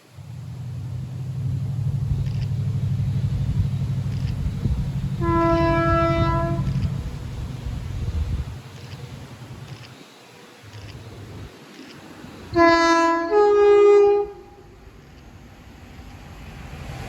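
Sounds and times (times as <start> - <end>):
diesel locomotive engine rumbling: 0.0 - 9.9, 10.6 - 17.0
locomotive horn blast: 1.8 - 9.2, 12.5 - 15.1.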